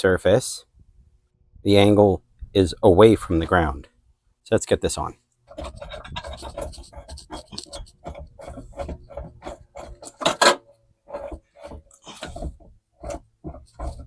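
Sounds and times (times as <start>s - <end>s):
metal clicks and scrapes: 5.4s - 14.0s.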